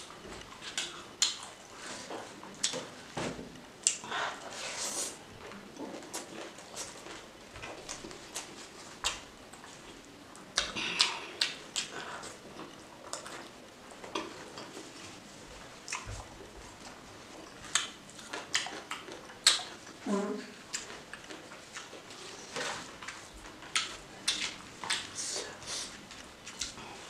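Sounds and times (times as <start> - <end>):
chewing: 0.0 - 3.0, 3.8 - 27.0
wet mouth clicks and smacks: 0.7 - 1.4, 3.8 - 4.0, 17.7 - 19.7.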